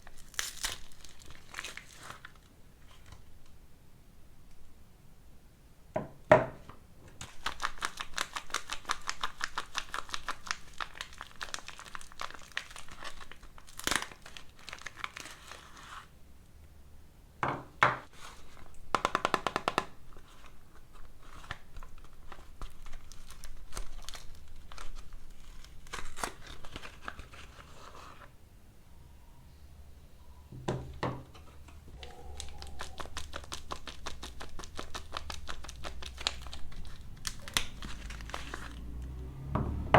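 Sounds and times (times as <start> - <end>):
soap packaging crinkling and tearing: 0.0 - 3.6, 7.2 - 16.1, 18.1 - 28.3, 32.0 - 39.1.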